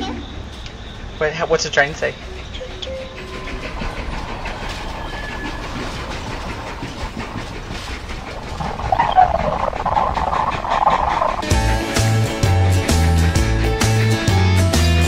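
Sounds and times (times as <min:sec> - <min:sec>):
shrill squeal: 0:00.0 - 0:07.9
wheels clicking on track: 0:00.0 - 0:14.5
light-rail car running noise: 0:00.0 - 0:15.0.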